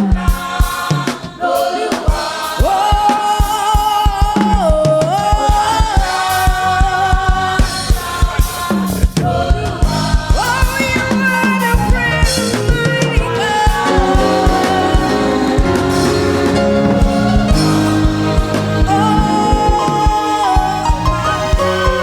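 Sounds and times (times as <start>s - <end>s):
choir singing: 0.0s - 22.0s
drum kit beat: 0.0s - 22.0s.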